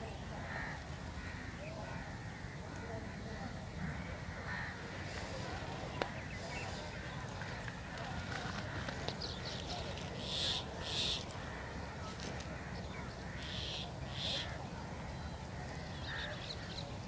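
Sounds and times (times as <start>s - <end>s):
bird calling harshly: 10.2s - 11.2s, 13.3s - 14.6s.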